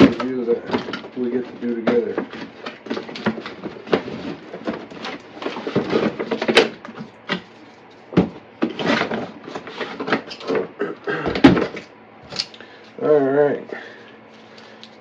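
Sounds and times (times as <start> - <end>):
cardboard box rustling and scraping: 0.8 - 7.2, 8.6 - 10.3.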